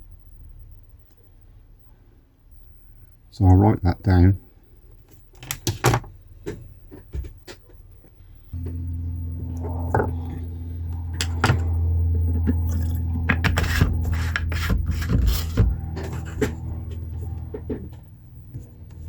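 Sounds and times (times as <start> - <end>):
low electrical hum: 0.0 - 19.0
rubbing and scraping handling noise: 7.0 - 19.0.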